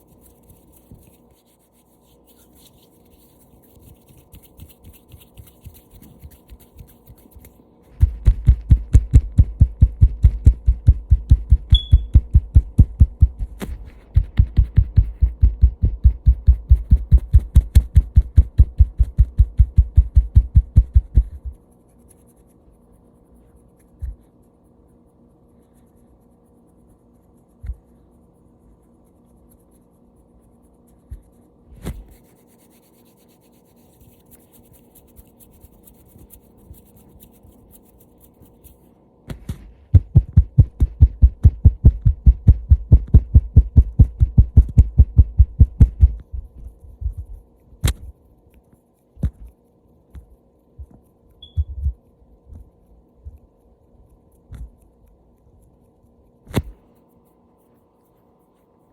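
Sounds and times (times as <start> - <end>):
hand rustling: 0.0 - 7.6
faint steady hum: 0.0 - 58.9.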